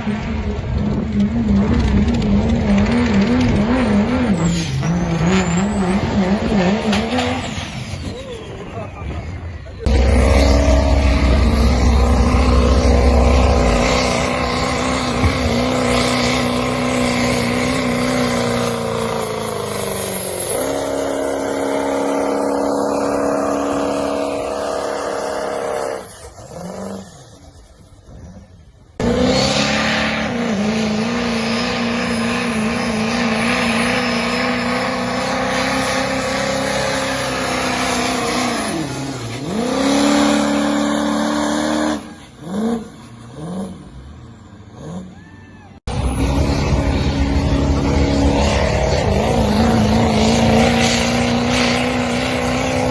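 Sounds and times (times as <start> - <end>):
heavy low rumble: 0.0 - 5.3, 7.5 - 17.7, 45.8 - 51.4
diesel truck engines at full throttle: 0.0 - 52.9.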